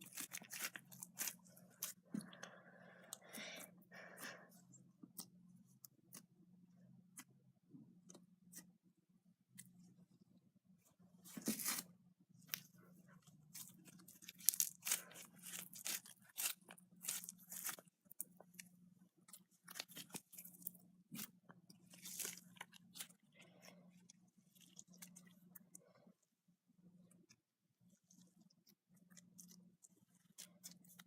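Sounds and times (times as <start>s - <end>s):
faint low hum: 0.0s - 31.0s
slime crackling and popping: 14.1s - 18.3s.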